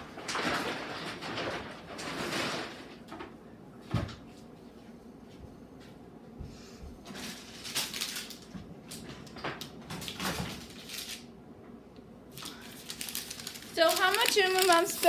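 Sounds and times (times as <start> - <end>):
grocery bags rustling: 7.1 - 9.0, 10.0 - 11.3, 12.3 - 15.0.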